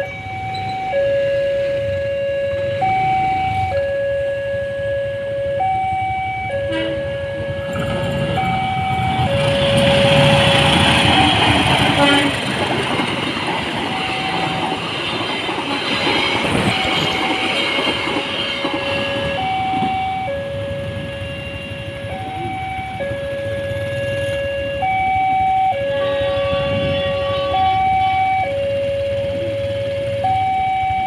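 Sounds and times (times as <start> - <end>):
two-tone level crossing alarm: 0.0 - 12.3, 12.9 - 31.0
train coaches rushing past: 6.7 - 31.0.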